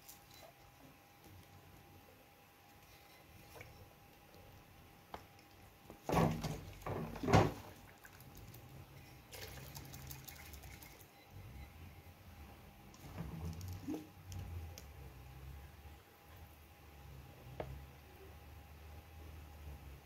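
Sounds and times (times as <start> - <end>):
liquid splashing and pouring: 6.1 - 11.1.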